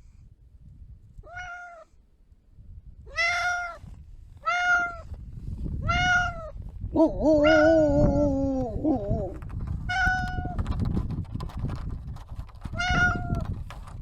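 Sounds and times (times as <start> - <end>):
cat meowing: 1.2 - 1.9, 3.1 - 3.8, 4.4 - 5.1, 5.8 - 6.6, 7.2 - 10.6, 12.8 - 13.4.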